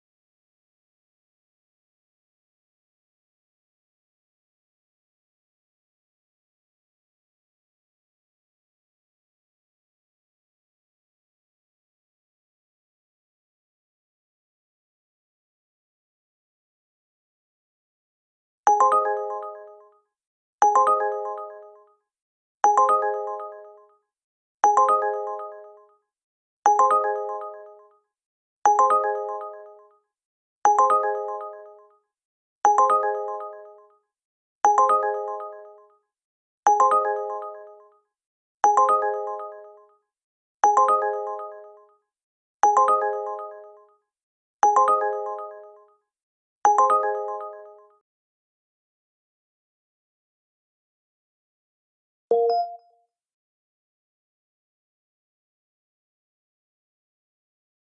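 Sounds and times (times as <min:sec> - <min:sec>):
electronic bell-like alert chime: 0:52.3 - 0:53.0.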